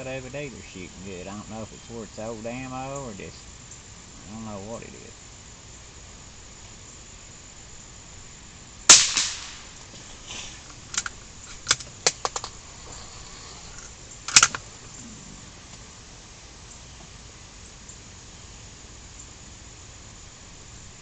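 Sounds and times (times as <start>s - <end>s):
gunshot: 8.9s - 9.7s
gun clicks: 10.7s - 12.6s, 13.8s - 14.6s.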